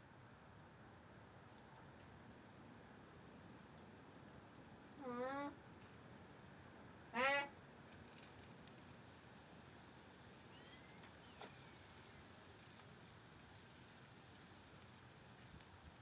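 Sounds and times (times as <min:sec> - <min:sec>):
faint high chirps: 0:10.5 - 0:11.9.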